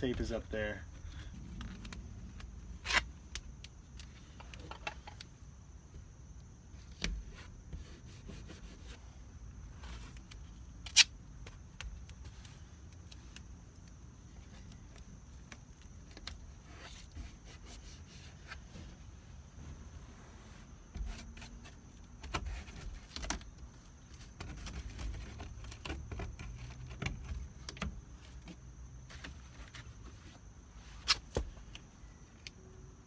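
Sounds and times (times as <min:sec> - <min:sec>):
rustles and scrapes of hand work: 0:06.7 - 0:31.7.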